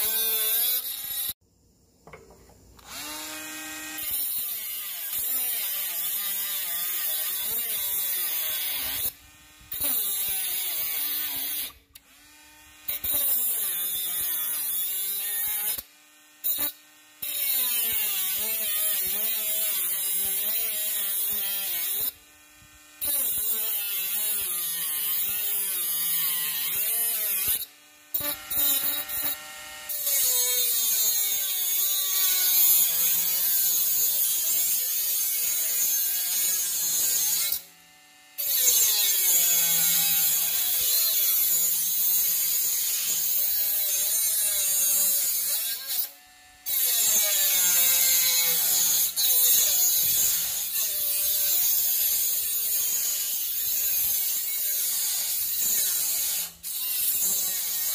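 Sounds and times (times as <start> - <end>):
angle grinder motor whine: 2.1 - 4.3.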